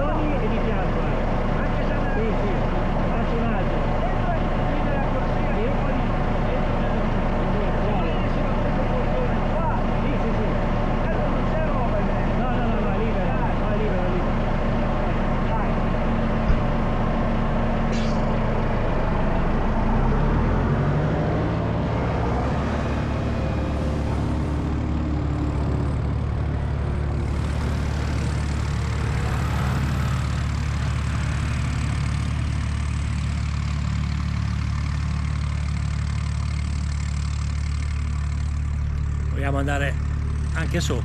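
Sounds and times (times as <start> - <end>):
low motor hum: 13.8 - 41.0.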